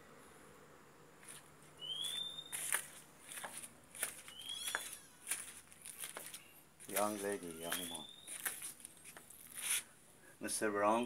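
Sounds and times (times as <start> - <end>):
bird rising whistle call: 1.8 - 2.7, 4.3 - 5.2, 7.6 - 8.4.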